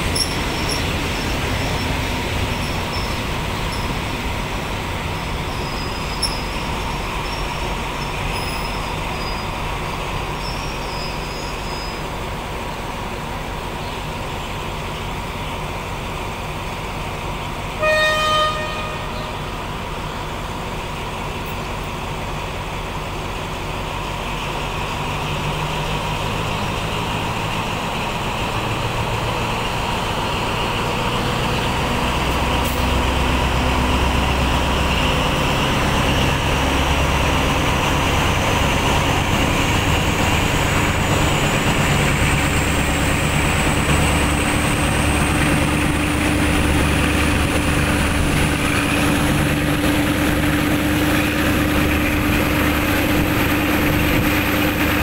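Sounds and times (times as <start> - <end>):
diesel engine rumble: 0.0 - 55.0
train horn toot: 17.8 - 19.5.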